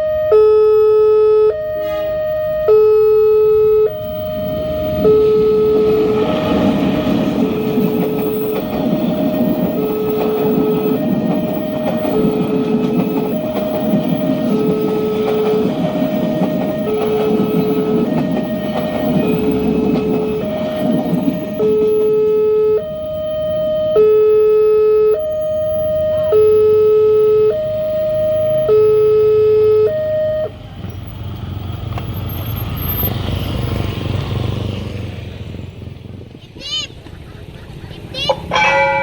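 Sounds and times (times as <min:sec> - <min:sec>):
level-crossing alarm ding-dong: 0:00.0 - 0:30.6, 0:38.3 - 0:39.0
passing train rumble: 0:01.5 - 0:39.0
road vehicle engines rumbling: 0:01.5 - 0:39.0.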